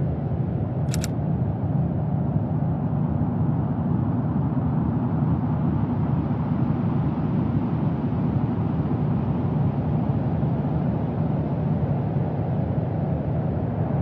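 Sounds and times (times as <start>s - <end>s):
sharp click: 0.9s - 1.1s.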